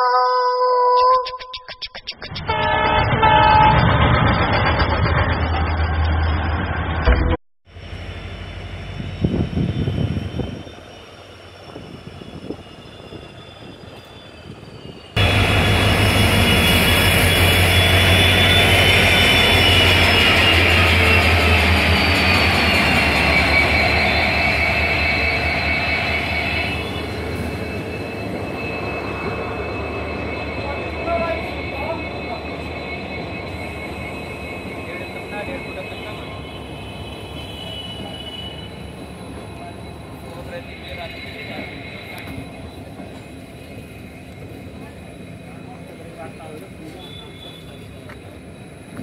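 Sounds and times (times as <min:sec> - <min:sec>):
locomotive rumble with high whine: 0:02.3 - 0:49.0
loud train running: 0:02.3 - 0:49.0
train clattering: 0:02.8 - 0:06.8.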